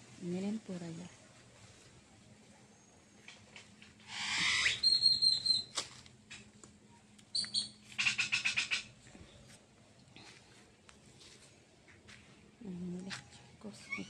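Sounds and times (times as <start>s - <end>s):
bird calling: 2.9s - 5.8s, 7.3s - 9.0s.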